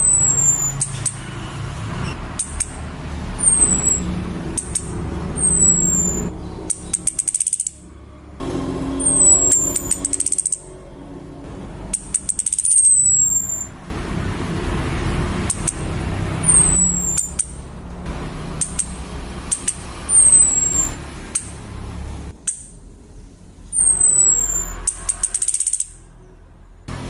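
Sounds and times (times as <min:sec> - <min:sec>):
thrush downward whistle: 0:05.4 - 0:06.3, 0:09.0 - 0:10.3, 0:16.4 - 0:17.3, 0:20.1 - 0:21.0
quick high ticks: 0:18.6 - 0:21.6.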